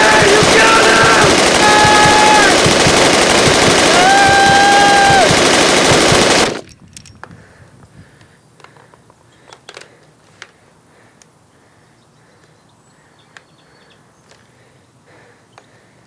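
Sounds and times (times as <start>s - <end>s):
faint bird or insect chirps: 11.7s - 15.8s.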